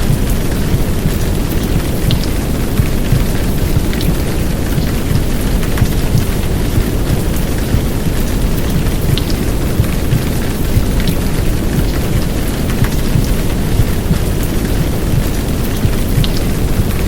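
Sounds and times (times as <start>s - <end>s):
heavy rain downpour: 0.0s - 17.0s
muffled heartbeat: 0.0s - 17.0s
white noise rumble: 0.0s - 17.0s.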